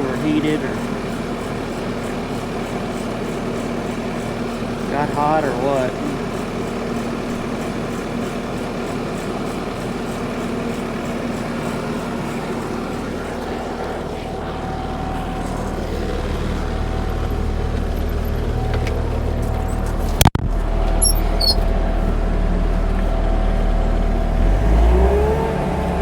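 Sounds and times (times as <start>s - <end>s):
diesel engine droning: 0.0s - 26.0s.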